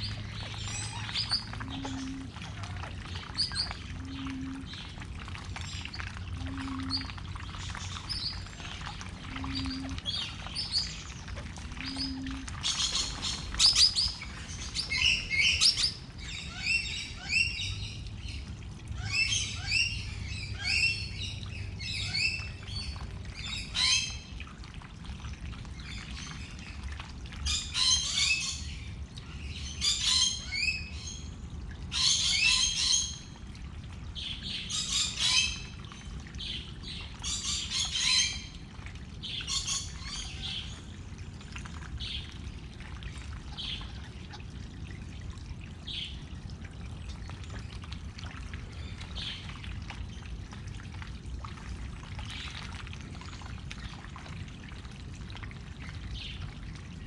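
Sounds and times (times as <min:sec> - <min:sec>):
steady low hum: 0:00.0 - 0:27.7, 0:38.4 - 0:57.0.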